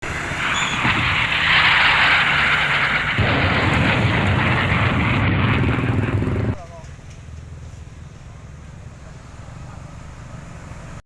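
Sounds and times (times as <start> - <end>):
train passing rumble: 0.0 - 11.0.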